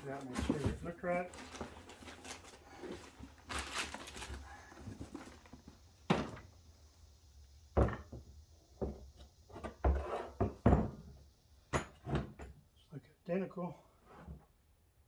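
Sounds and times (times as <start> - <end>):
dull knocks on hard surface: 9.6 - 11.0.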